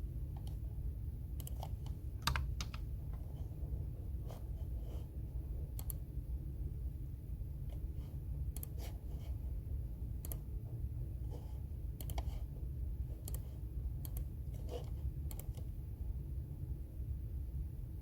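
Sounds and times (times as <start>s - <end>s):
steady low hum: 0.0s - 18.0s
keyboard keys clicking: 1.4s - 2.8s.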